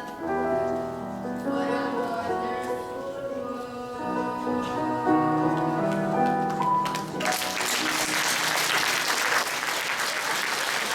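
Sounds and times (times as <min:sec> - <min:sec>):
piano music: 0:00.0 - 0:10.0
audience applause: 0:06.8 - 0:10.9.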